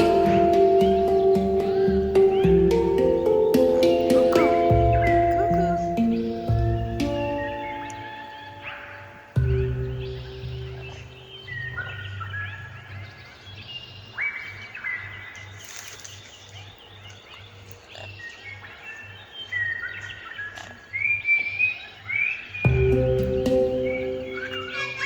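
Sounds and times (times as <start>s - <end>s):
background music with low beat: 0.0s - 12.5s, 22.7s - 25.0s.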